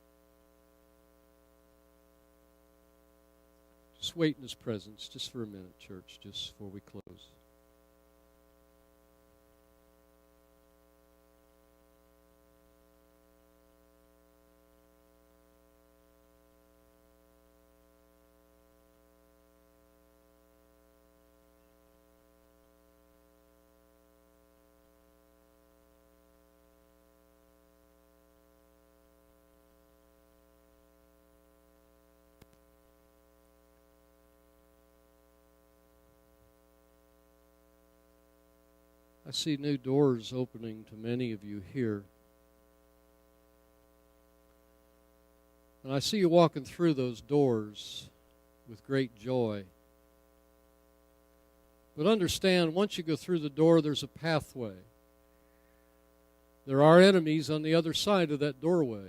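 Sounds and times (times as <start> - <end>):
steady electrical hum: 0.0 - 59.0
faint click: 32.4 - 32.7.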